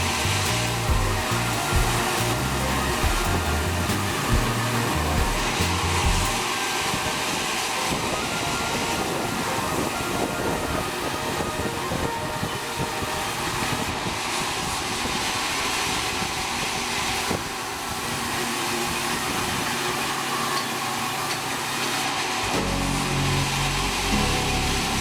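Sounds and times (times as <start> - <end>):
deep engine-like hum: 0.0 - 6.4
sawmill machinery hissing: 0.0 - 25.0.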